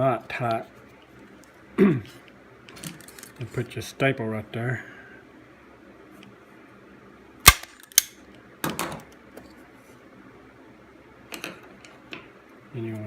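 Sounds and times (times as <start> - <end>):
staple gun snapping: 7.5 - 8.1.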